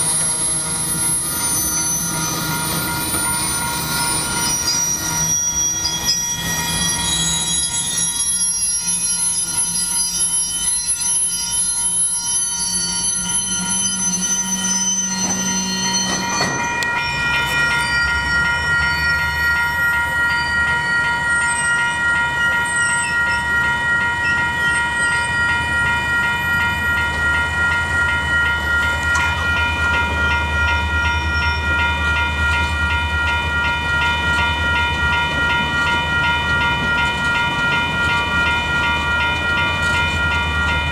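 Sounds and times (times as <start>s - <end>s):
diesel locomotives rumbling: 0.0s - 12.2s, 13.0s - 40.9s
high-pitched wheel squeal: 0.0s - 30.0s
crossing bells ringing: 0.0s - 40.9s.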